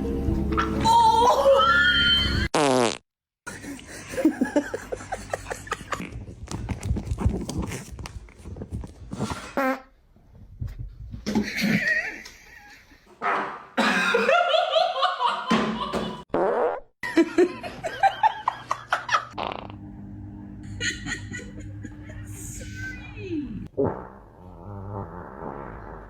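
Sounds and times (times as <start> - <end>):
long sputtering fart: 2.5 - 3.0, 16.3 - 16.9, 19.3 - 19.9, 23.6 - 26.0
pitched voices: 21.9 - 23.7.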